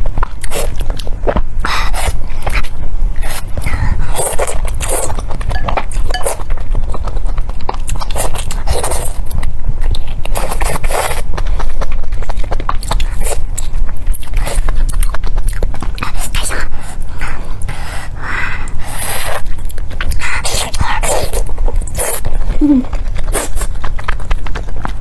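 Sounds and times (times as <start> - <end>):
wet chewing with mouth clicks: 0.0 - 25.0
squelching chew: 0.2 - 25.0
bite into chili pepper: 18.8 - 25.0.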